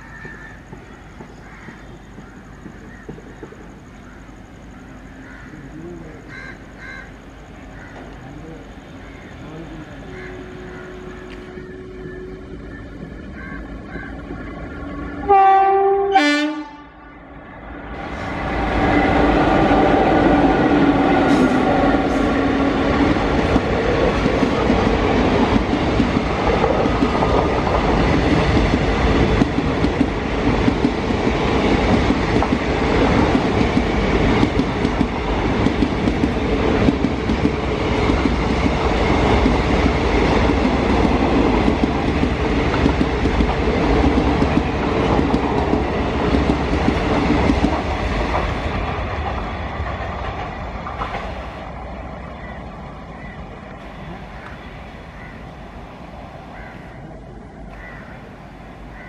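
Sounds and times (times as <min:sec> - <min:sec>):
rail-joint clickety-clack: 0:00.0 - 0:04.4, 0:18.0 - 0:51.9
train coaches rumbling past: 0:00.0 - 0:59.0
locomotive horn: 0:09.9 - 0:12.7, 0:15.2 - 0:17.2.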